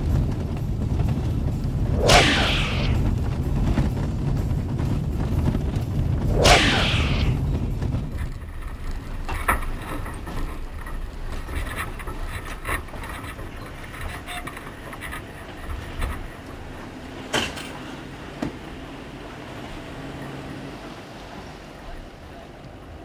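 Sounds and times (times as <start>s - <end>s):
vehicle rumbling: 0.0s - 23.0s
loud whoosh: 1.9s - 3.8s, 6.2s - 8.5s.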